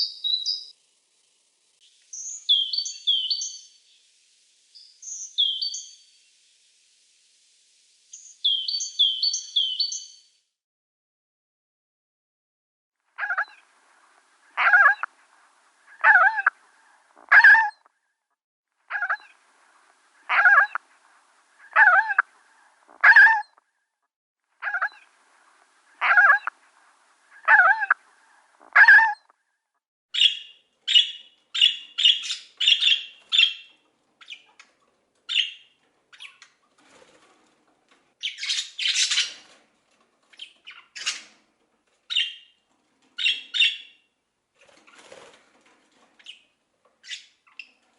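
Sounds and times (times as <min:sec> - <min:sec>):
loud clear bird calls: 0:00.0 - 0:00.7, 0:01.9 - 0:04.1, 0:04.7 - 0:06.3, 0:08.1 - 0:10.3, 0:13.2 - 0:13.7, 0:14.5 - 0:15.2, 0:15.8 - 0:17.8, 0:18.9 - 0:19.4, 0:20.2 - 0:20.8, 0:21.5 - 0:23.6, 0:24.6 - 0:25.1, 0:26.0 - 0:26.6, 0:27.2 - 0:29.3, 0:30.2 - 0:34.7, 0:35.3 - 0:36.5, 0:38.2 - 0:39.6, 0:42.1 - 0:42.6, 0:43.2 - 0:44.1.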